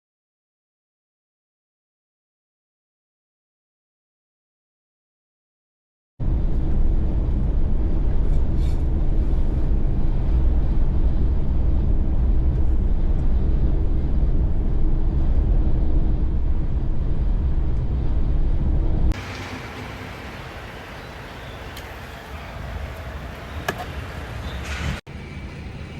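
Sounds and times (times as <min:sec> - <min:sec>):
road noise: 0:06.2 - 0:25.9
truck engine drone: 0:06.2 - 0:25.9
hissy background noise: 0:19.2 - 0:25.9.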